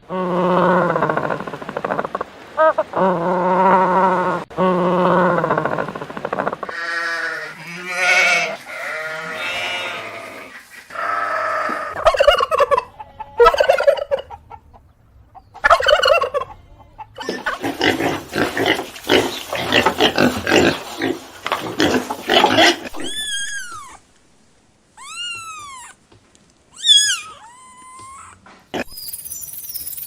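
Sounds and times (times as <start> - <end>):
poultry calling: 5.4 - 24.0, 25.0 - 26.0.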